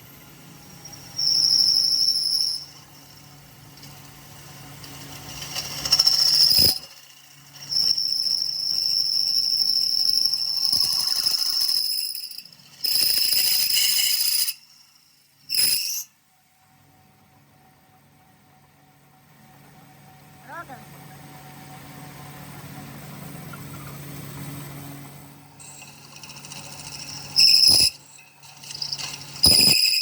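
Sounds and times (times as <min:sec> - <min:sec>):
power tool whine cutting metal: 0:00.0 - 0:16.2, 0:25.2 - 0:30.0
low motor hum: 0:16.5 - 0:29.5.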